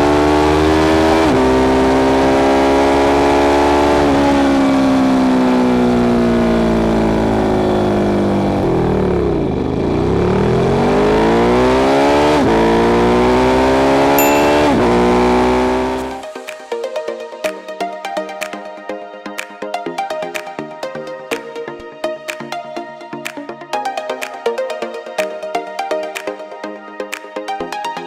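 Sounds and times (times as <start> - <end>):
motorcycle engine accelerating: 6.0 - 16.2.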